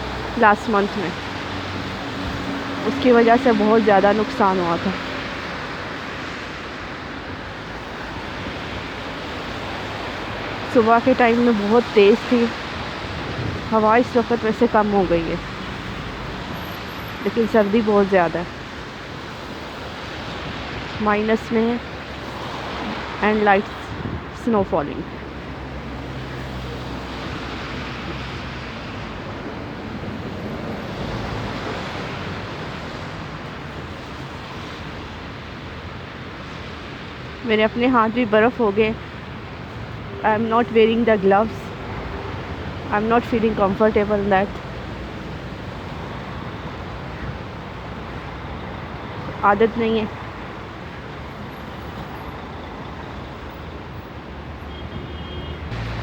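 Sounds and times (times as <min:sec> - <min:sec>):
street traffic: 0:00.0 - 0:56.0
wind rushing: 0:12.5 - 0:14.4, 0:21.8 - 0:33.9
low engine hum: 0:55.7 - 0:56.0.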